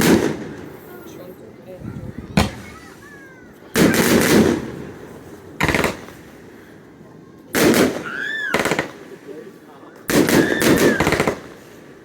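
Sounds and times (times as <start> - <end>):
firework bang: 0.0 - 0.8, 2.3 - 3.1, 3.7 - 6.6
fireworks crackling: 0.0 - 12.0.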